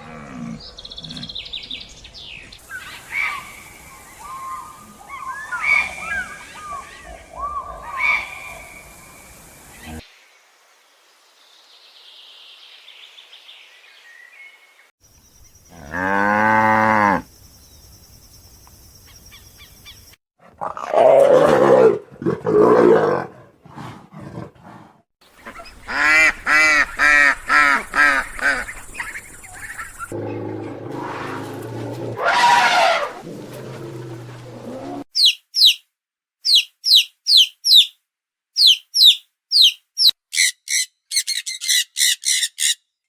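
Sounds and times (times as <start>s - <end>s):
loud harsh animal calls: 30.1s - 35.8s.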